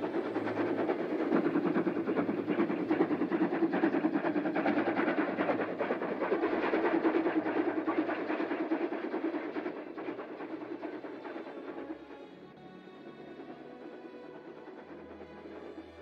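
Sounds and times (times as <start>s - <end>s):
freight train passing: 0.0s - 16.0s.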